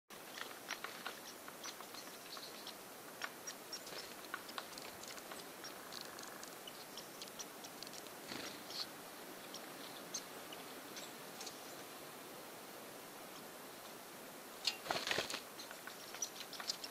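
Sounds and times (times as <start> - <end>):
woodpecker pecking taps: 0.3 - 8.1.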